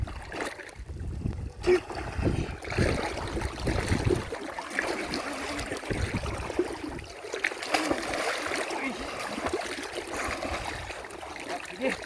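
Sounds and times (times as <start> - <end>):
water sloshing and trickling: 0.0 - 12.0.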